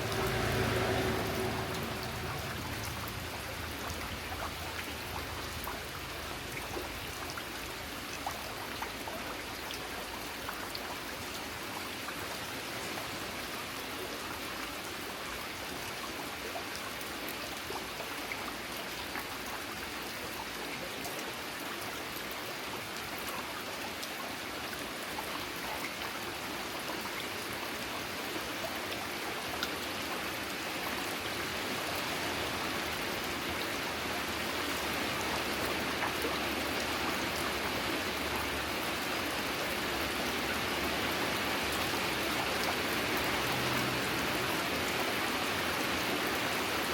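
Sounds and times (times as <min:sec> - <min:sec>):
raindrops ticking: 0:00.0 - 0:07.3
rain falling: 0:00.0 - 0:46.9.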